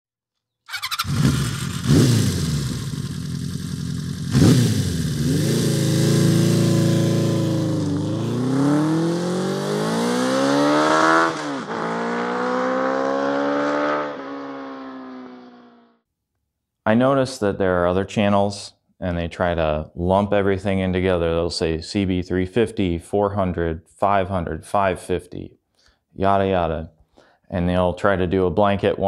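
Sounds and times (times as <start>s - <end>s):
motorcycle engine revving and accelerating: 0.7s - 15.8s.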